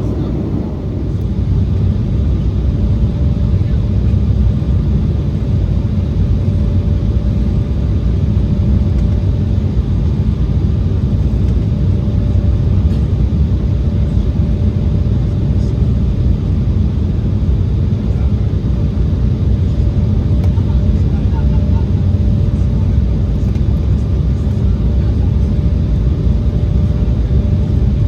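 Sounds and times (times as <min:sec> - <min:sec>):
airflow and jet engine rumble: 0:00.0 - 0:28.0.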